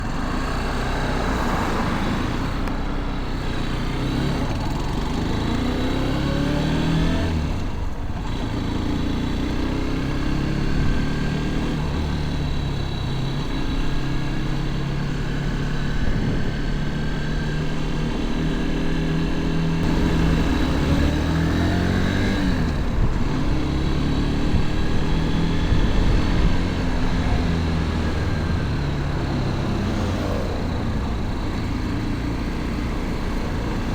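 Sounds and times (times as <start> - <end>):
motorcycle engine accelerating: 0.0 - 33.9.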